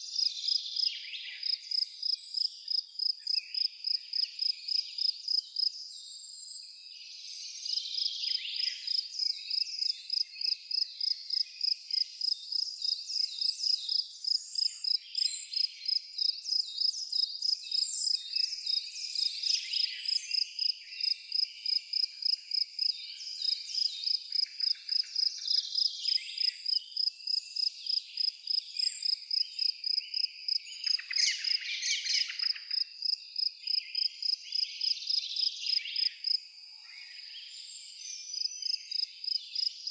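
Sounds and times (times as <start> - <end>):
insect chirping: 0.2 - 5.7, 8.9 - 39.9
birds calling and twittering: 27.8 - 32.9.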